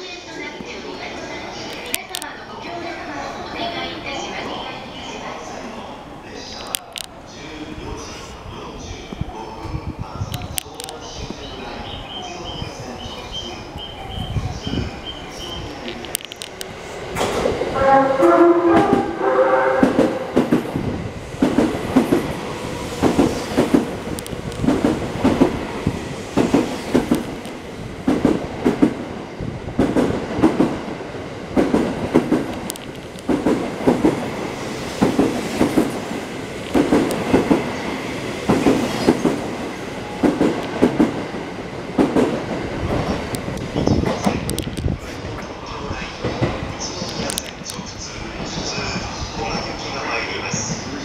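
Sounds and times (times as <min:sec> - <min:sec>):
train horn melody: 0:17.7 - 0:20.4.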